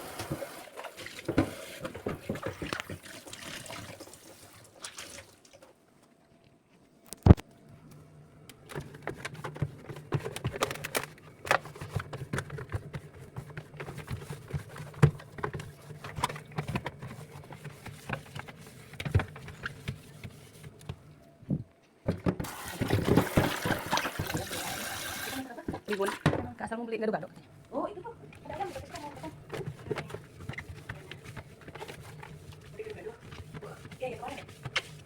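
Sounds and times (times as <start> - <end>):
tap running: 0.0 - 3.6, 22.1 - 26.5, 28.2 - 35.0
household items knocking and clicking: 22.0 - 24.7.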